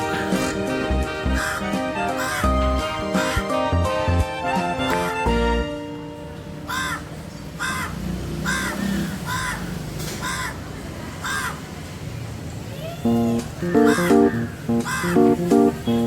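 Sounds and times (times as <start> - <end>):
crow cawing: 0.0 - 3.6, 6.7 - 11.7, 13.6 - 15.5.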